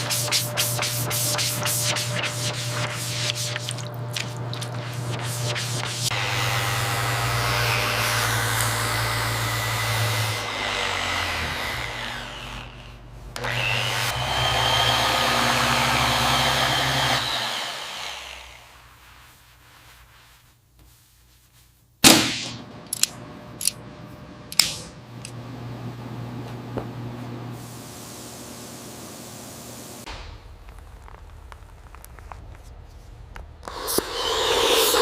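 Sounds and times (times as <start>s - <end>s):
power tool whirring: 6.1s - 18.8s
sharp knock: 22.0s - 22.6s.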